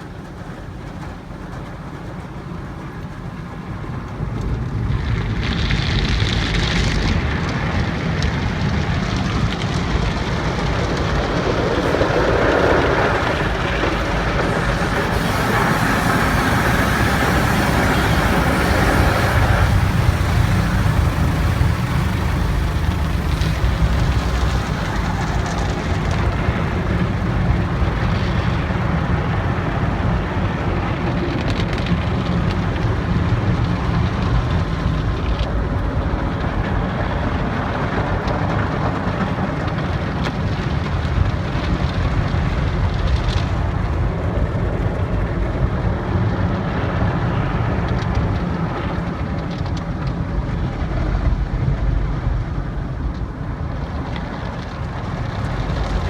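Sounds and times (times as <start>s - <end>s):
machinery rumble: 0.0s - 56.0s
water spray rushing: 9.4s - 31.1s.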